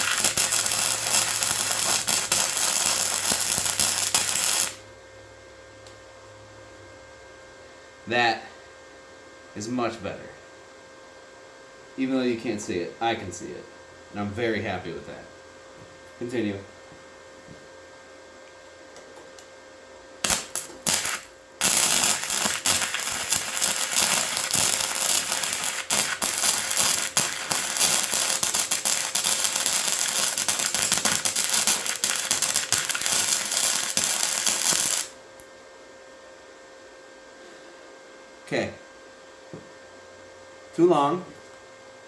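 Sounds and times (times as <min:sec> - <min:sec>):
welding arc crackling: 0:00.0 - 0:04.8, 0:20.2 - 0:35.5.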